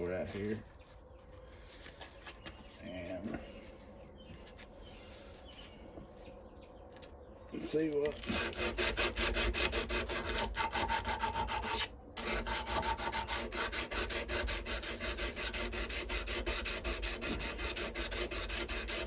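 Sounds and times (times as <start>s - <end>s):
sandpaper scraping steel blade: 8.1s - 19.0s.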